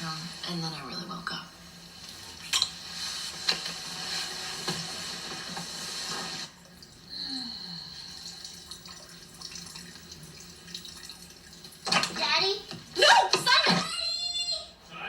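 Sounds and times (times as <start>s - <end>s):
water stream running: 0.0s - 13.7s
water trickling: 6.6s - 13.0s.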